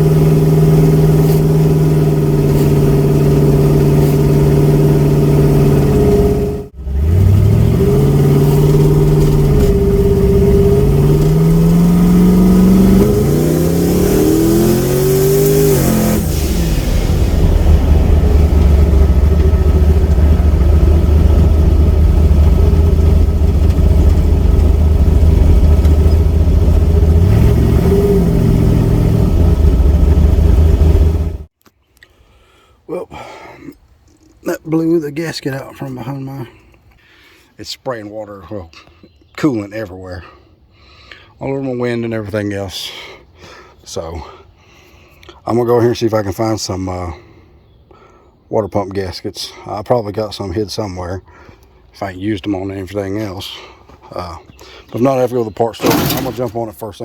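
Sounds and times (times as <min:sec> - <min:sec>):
car engine revving: 0:00.0 - 0:31.5, 0:55.8 - 0:56.6.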